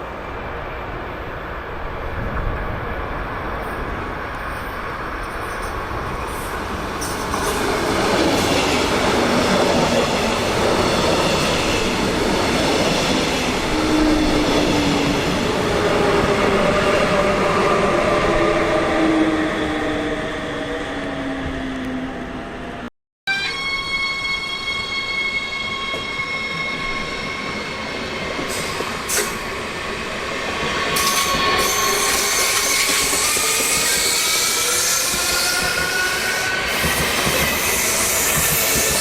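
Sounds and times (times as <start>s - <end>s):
train wheels rumbling: 24.4s - 39.0s.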